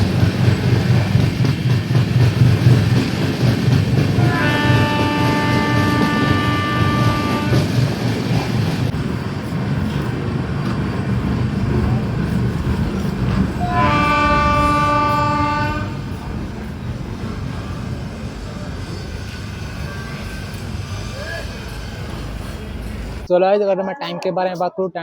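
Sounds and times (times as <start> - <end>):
train rumbling: 0.0 - 23.5
locomotive horn blasts: 4.2 - 7.7, 13.6 - 16.0.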